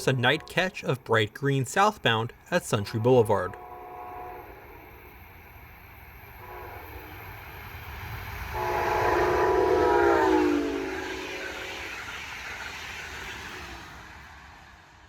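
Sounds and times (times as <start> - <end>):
train horn blasts: 0.0 - 0.9, 2.9 - 5.1, 6.4 - 7.3, 8.5 - 12.0
train rumble: 0.0 - 15.0.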